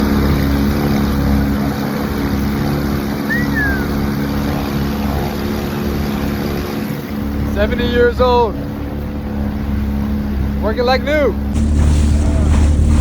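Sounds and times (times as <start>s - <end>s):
boat motor humming: 0.0s - 13.0s
rushing noise: 11.6s - 13.0s.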